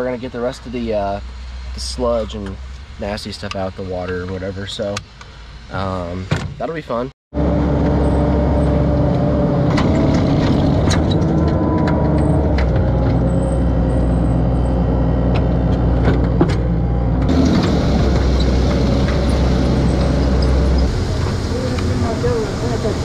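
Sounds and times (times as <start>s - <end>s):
loader engine running: 7.4s - 23.0s.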